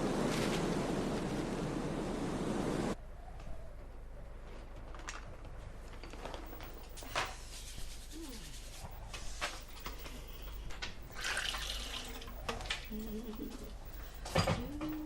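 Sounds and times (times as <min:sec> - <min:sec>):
gusty wind: 0:00.0 - 0:03.3.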